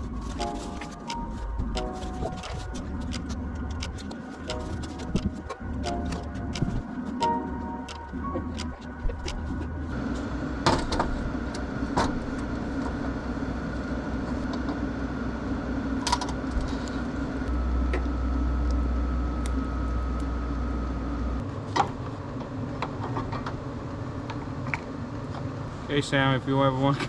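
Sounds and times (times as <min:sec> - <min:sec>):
low rumble: 0:00.0 - 0:14.6
low machine hum: 0:00.0 - 0:22.6.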